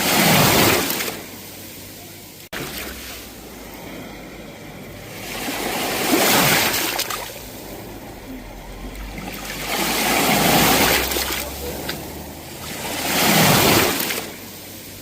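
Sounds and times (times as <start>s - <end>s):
sea waves washing onto shore: 0.0s - 15.0s.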